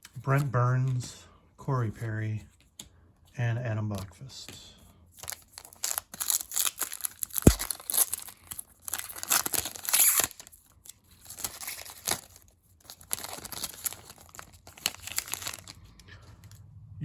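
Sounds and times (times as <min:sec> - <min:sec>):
wrapper tearing and crinkling: 0:05.2 - 0:16.0
cards handled: 0:05.2 - 0:16.1.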